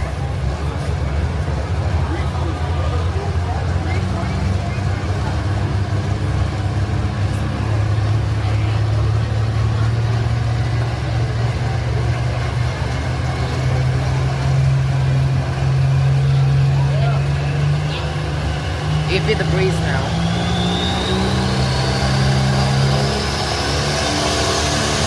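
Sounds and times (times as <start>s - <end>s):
tractor diesel engine running hard: 0.0s - 25.0s.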